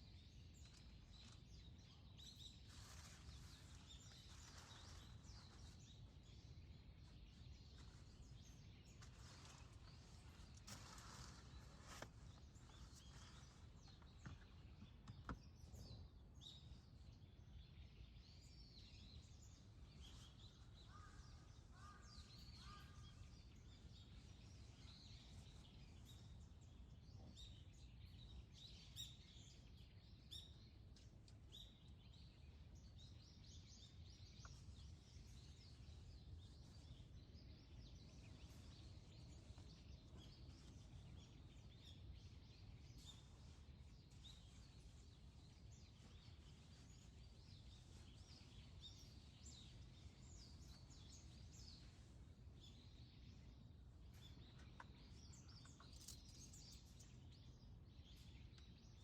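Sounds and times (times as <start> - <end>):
birds chirping: 18.5 - 59.0.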